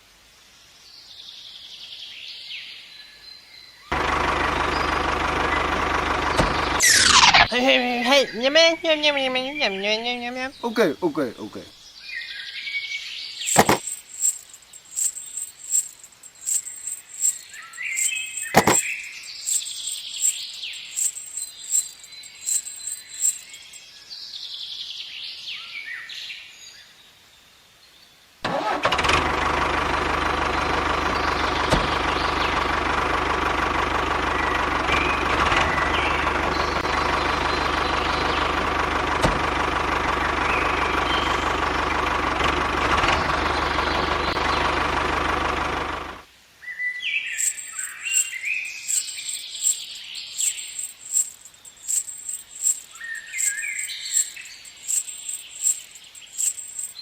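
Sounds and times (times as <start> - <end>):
birds chirping: 13.5 - 23.8, 47.3 - 57.0.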